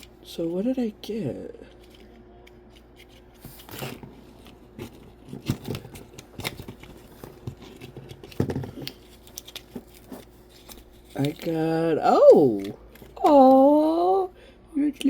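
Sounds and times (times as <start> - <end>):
packaging rustling and crinkling: 1.8 - 13.2.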